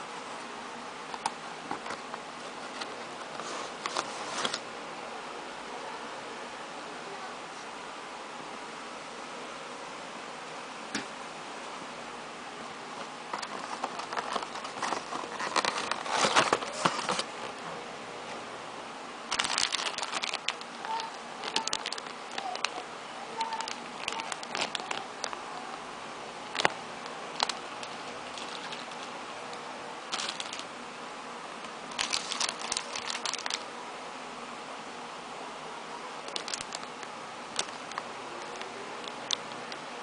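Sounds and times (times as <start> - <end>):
plastic wrapping crinkling: 13.3 - 17.3, 19.3 - 22.8, 23.4 - 25.5, 26.5 - 29.2, 30.1 - 30.7, 31.9 - 33.7, 36.2 - 39.8.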